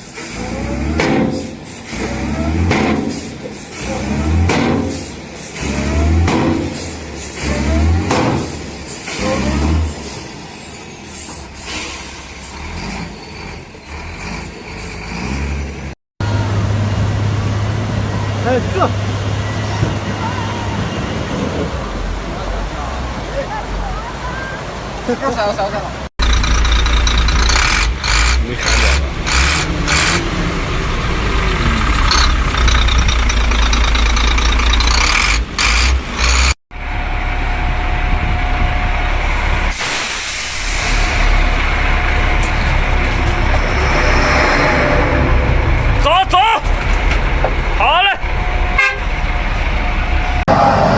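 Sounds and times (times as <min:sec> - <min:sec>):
air brake hissing bursts: 0:11.2 - 0:12.4, 0:39.3 - 0:41.6
truck engine running: 0:15.8 - 0:50.9.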